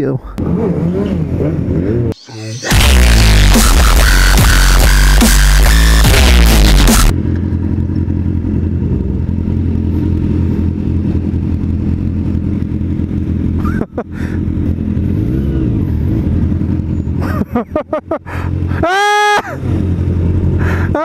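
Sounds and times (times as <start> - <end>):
music: 2.2 - 7.1
motorcycle engine running: 2.7 - 18.8, 19.6 - 21.0.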